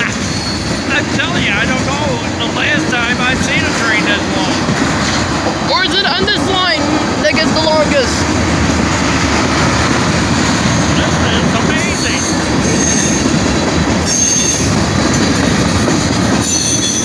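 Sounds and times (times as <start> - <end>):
high-pitched wheel squeals: 0.0 - 1.0, 11.8 - 13.4, 14.0 - 14.8, 16.4 - 17.0
freight train rumbling past: 0.0 - 17.0.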